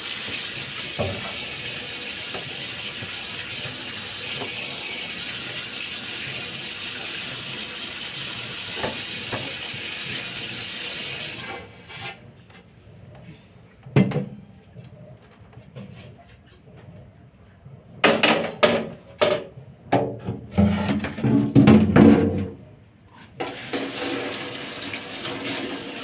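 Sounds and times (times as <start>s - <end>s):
tap water running into sink: 0.0s - 11.6s, 23.4s - 26.0s.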